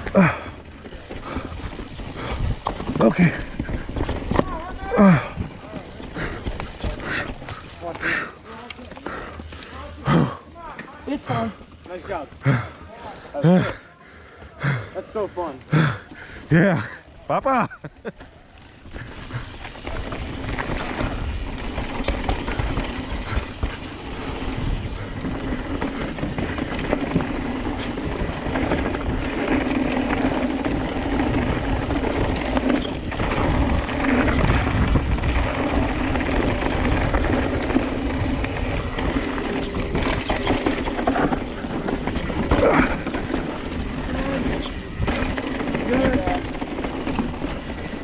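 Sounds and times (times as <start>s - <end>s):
mountain bike rattling on dirt trail: 0.0s - 48.0s
wind rushing over microphone: 19.2s - 46.8s.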